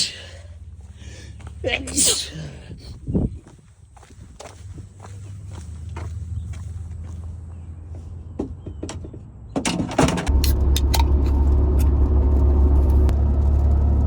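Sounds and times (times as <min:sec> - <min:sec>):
car engine running: 0:00.0 - 0:02.0, 0:04.4 - 0:08.4, 0:10.3 - 0:14.0.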